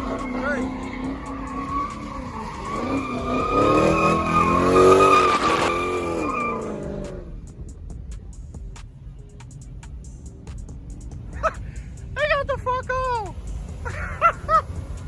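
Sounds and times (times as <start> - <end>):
tyres squealing: 0.0 - 7.2
car engine revving: 0.0 - 15.0.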